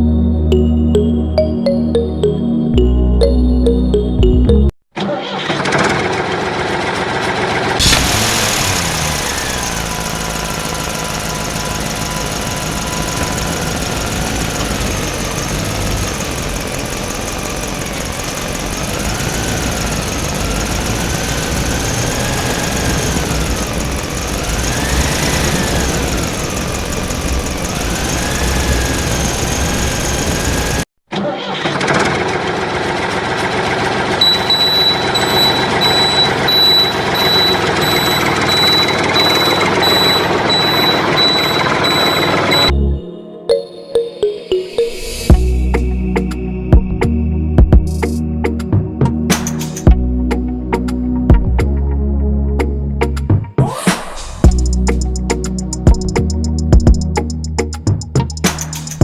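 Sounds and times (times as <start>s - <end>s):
engine whining over low rumble: 7.4s - 30.9s, 54.2s - 59.0s
high reversing beeps: 34.2s - 47.0s.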